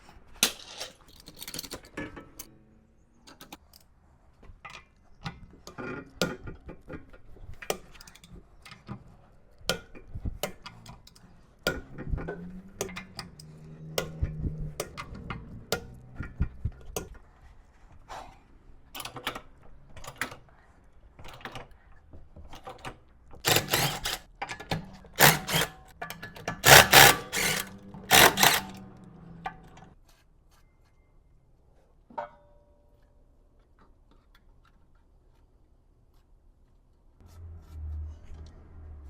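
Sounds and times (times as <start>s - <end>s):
metallic clicks and knocks: 22.5s - 30.0s
ratchet wrench rattling: 23.5s - 24.2s, 25.2s - 25.9s, 26.5s - 29.0s.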